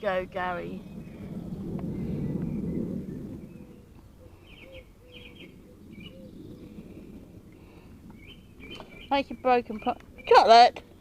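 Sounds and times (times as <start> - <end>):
small birds chirping: 0.0 - 11.0
dove cooing: 0.8 - 9.1.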